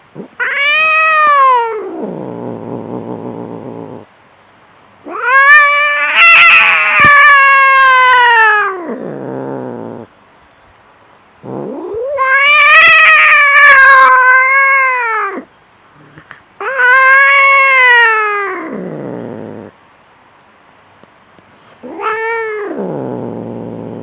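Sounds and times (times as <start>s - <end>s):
cat yowling in a fight: 0.3s - 2.5s, 5.0s - 10.1s, 11.5s - 15.5s, 16.6s - 19.7s, 21.8s - 23.9s.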